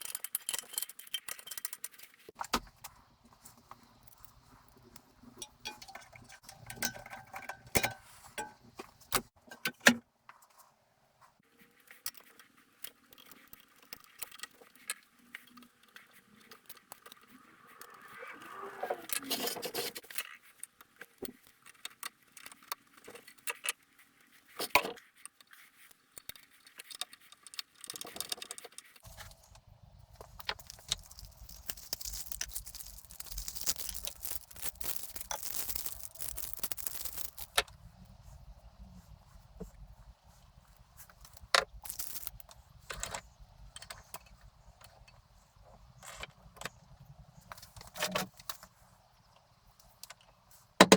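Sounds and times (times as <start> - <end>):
metal parts clinking and scraping: 0.0 - 2.3, 30.2 - 37.7, 41.2 - 43.2.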